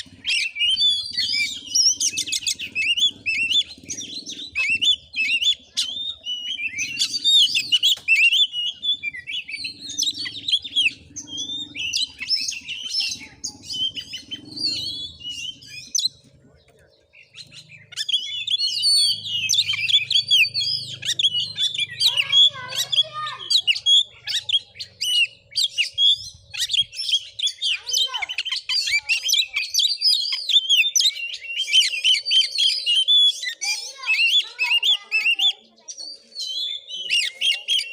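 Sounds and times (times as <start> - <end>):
bird singing whistles and chirps: 0.0 - 37.9
songbird continuous song: 0.0 - 37.9.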